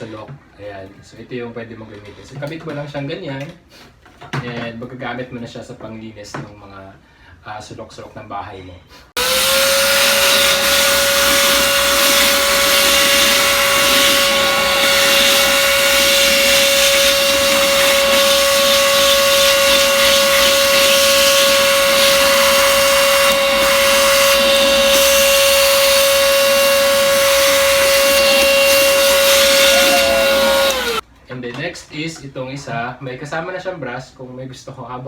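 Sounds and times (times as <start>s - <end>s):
handheld vacuum cleaner whine: 9.2s - 31.0s.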